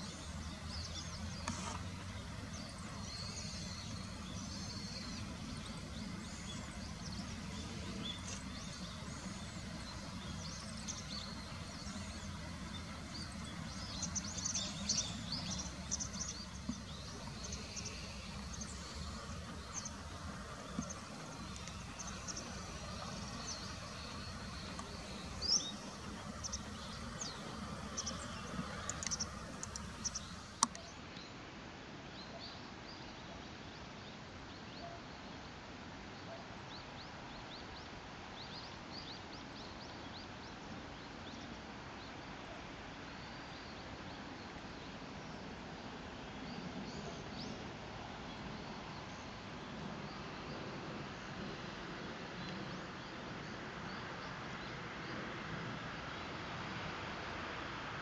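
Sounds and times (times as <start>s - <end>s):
small birds chirping: 0.0s - 31.0s
sharp click: 28.9s - 30.8s.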